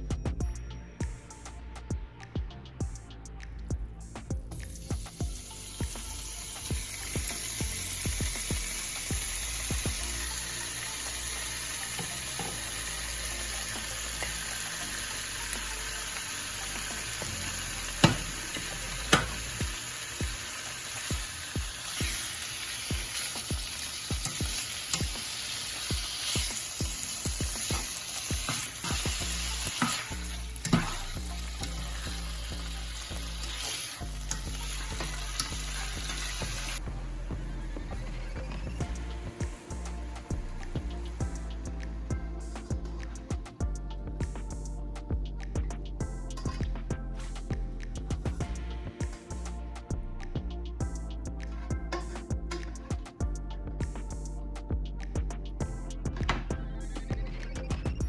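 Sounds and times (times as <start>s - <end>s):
steak sizzling in a hot pan: 4.6s - 36.8s.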